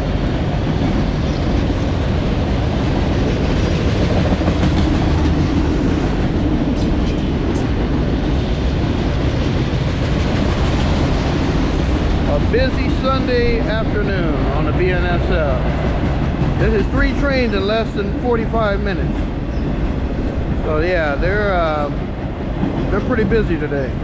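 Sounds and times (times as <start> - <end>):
freight train rumbling past: 0.0 - 24.0
wheels clacking over rail joints: 0.2 - 13.5.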